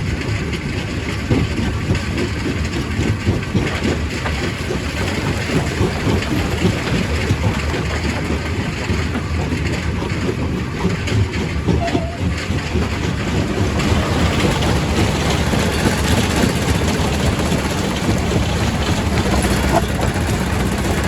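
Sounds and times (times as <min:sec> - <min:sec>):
rock crusher drone: 0:12.9 - 0:21.0.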